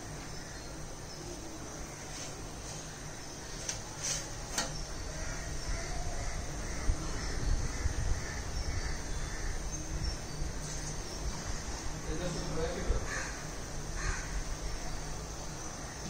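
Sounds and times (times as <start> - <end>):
crow-like caws: 5.1 - 9.6, 12.8 - 14.7.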